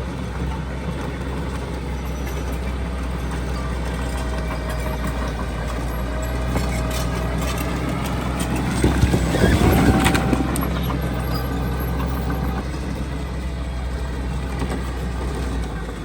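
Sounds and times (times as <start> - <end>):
diesel earth-moving machinery drone: 0.0 - 16.0
rumbling and rattling: 0.0 - 16.0
metallic clanks: 2.0 - 12.7.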